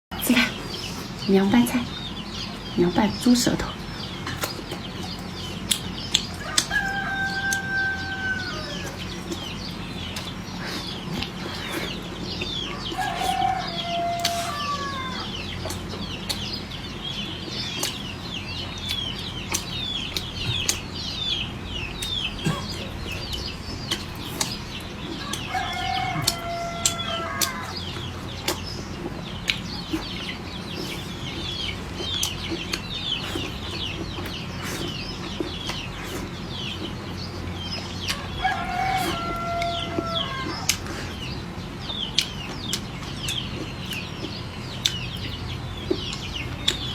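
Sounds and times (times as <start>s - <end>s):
chickens chirping: 0.1s - 46.9s
rooster crowing: 6.4s - 9.0s, 12.8s - 15.4s, 24.4s - 27.9s, 38.2s - 40.7s.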